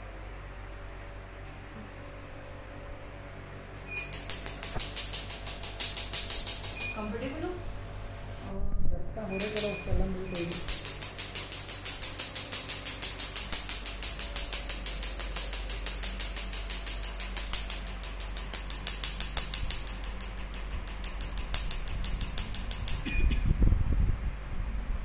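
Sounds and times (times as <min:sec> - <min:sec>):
machine fan hum: 0:00.0 - 0:25.0
laser firing sharp snapping pulses: 0:03.8 - 0:07.1, 0:09.4 - 0:23.4.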